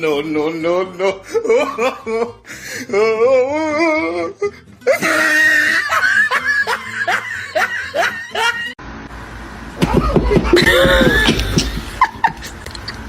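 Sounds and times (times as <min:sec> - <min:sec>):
laughter in short bursts: 0:10.0 - 0:13.0.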